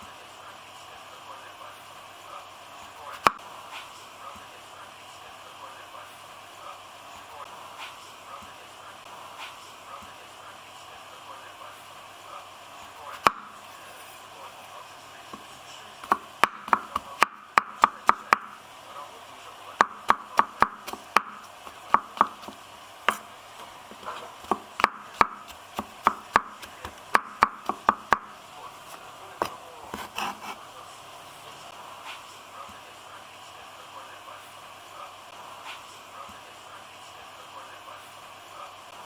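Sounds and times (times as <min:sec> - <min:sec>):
knife chopping on a cutting board: 0:03.2 - 0:03.4, 0:13.2 - 0:13.6, 0:15.3 - 0:18.6, 0:19.8 - 0:30.6.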